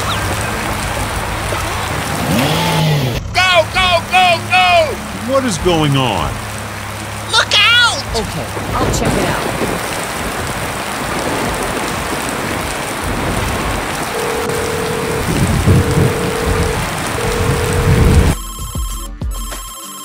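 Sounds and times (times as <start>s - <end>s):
steady rain: 0.0s - 18.4s
phone ringing: 14.1s - 18.8s.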